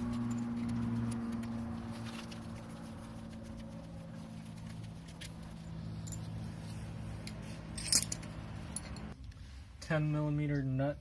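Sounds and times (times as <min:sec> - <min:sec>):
metal tools clicking: 0:07.2 - 0:09.2.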